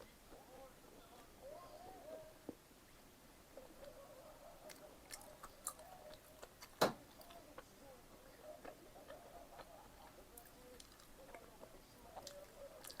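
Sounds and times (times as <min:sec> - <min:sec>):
chewing pizza: 0:03.6 - 0:13.0.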